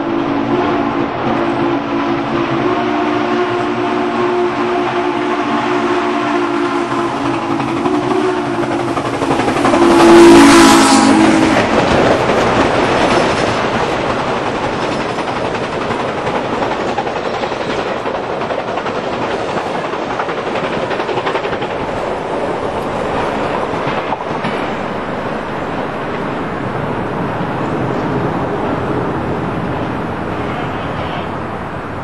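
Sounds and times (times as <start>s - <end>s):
train horn: 0.0s - 8.9s, 9.6s - 11.8s
train wheels on rails: 0.0s - 32.0s.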